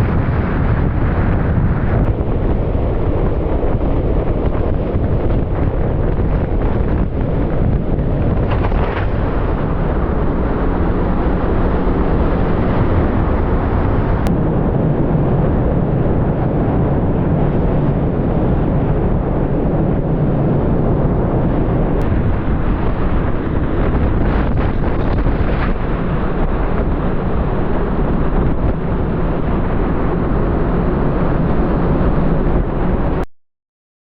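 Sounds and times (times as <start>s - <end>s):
loud wind rushing: 0.0s - 33.2s.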